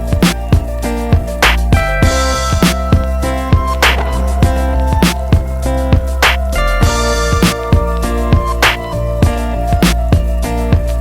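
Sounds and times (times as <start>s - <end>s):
kick drum: 0.0s - 6.2s.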